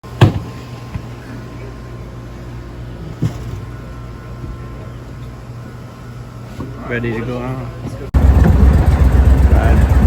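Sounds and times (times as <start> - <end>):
engine idling: 8.2 - 10.0.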